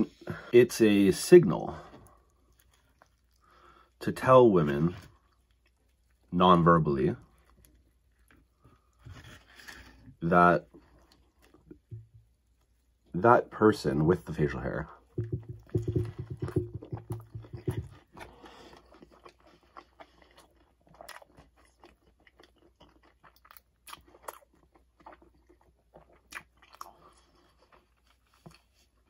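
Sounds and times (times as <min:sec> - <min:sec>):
chewing with wet mouth clicks: 0:02.0 - 0:03.6, 0:17.1 - 0:28.7.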